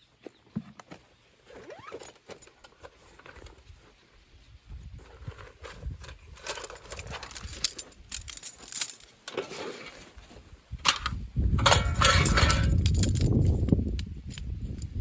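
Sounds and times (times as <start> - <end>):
hard objects clinking and knocking: 11.6 - 13.7.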